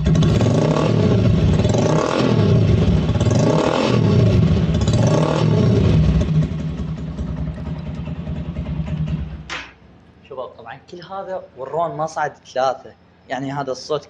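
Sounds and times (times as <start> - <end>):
motorcycle engine revving: 0.0 - 9.8
motorcycle engine idling: 0.0 - 10.0.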